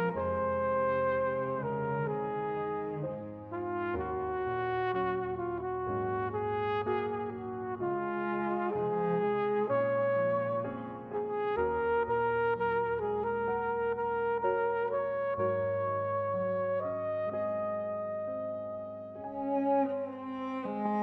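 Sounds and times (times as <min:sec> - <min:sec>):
slow brass-like chords: 0:00.0 - 0:10.6.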